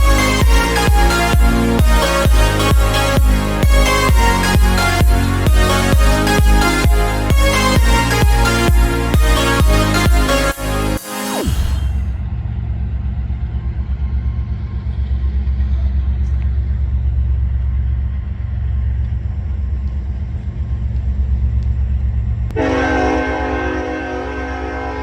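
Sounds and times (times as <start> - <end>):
freight train rumbling past: 12.2 - 25.0
held chord of tones: 22.6 - 25.0.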